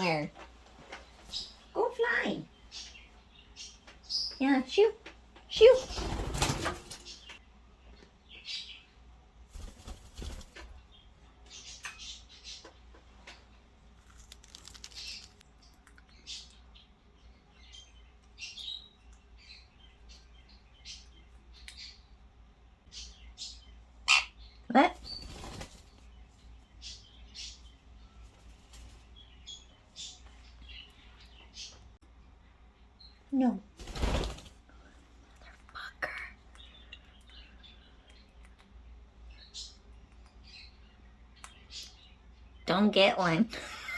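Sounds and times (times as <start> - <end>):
bird chirping: 0.0 - 43.9
bird flapping wings: 5.6 - 7.3, 9.5 - 10.8, 25.0 - 26.0, 33.8 - 34.7.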